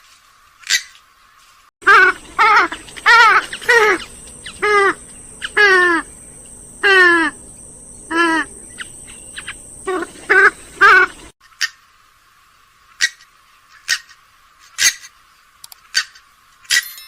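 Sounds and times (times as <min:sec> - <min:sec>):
swamphen calling: 0:01.8 - 0:11.8.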